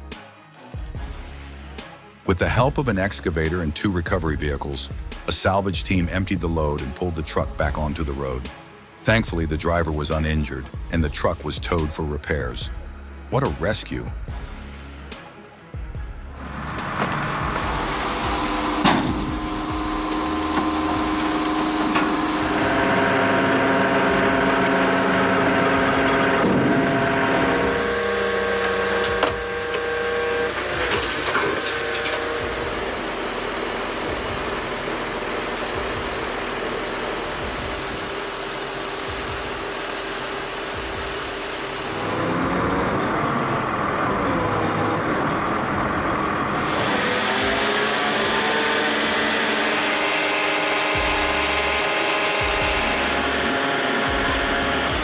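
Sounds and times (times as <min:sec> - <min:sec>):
heavy vehicle engines running: 0:16.3 - 0:55.0.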